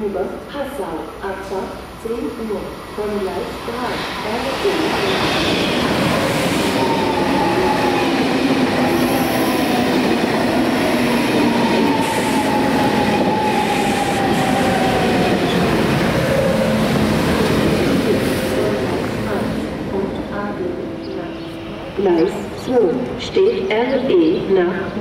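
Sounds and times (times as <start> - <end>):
train whine falling in pitch: 10.9 - 17.5.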